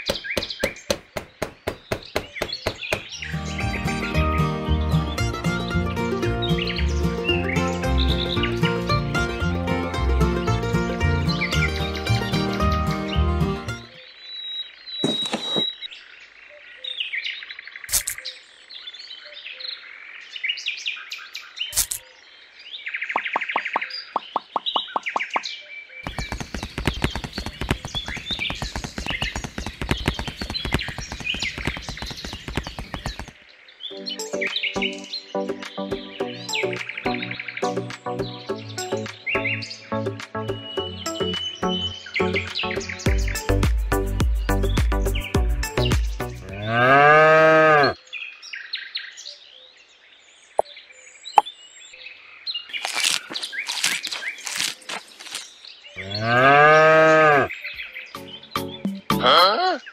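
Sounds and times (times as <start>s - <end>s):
hooves clip-clopping: 0.0s - 3.2s, 26.0s - 33.4s
birds chirping: 0.0s - 9.4s, 10.4s - 48.2s, 50.4s - 59.9s
plastic tub scraping on sand: 15.0s - 15.7s
sharp clicks: 26.1s - 33.3s
cow mooing: 46.4s - 48.0s, 56.0s - 57.5s.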